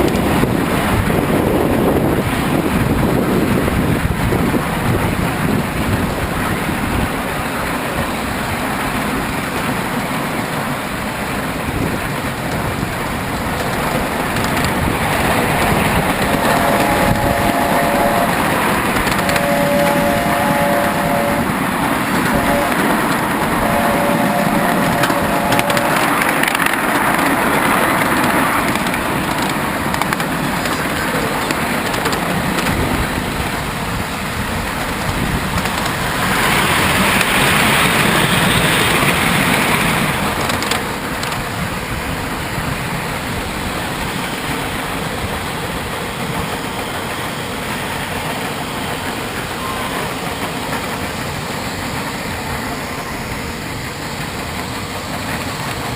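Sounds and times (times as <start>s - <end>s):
train rolling clatter: 0.0s - 55.9s
steam hiss: 7.4s - 55.9s
chord of steady tones: 15.4s - 27.6s.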